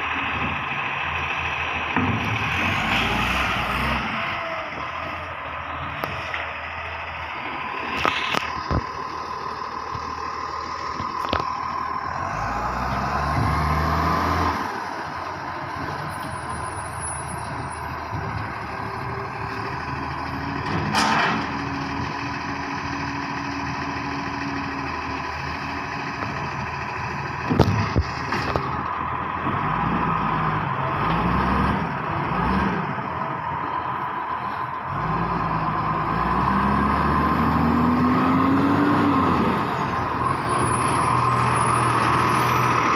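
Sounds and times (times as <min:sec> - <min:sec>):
garbage truck engine whining: 0:00.0 - 0:42.9
metal clanks and bangs: 0:20.6 - 0:21.7.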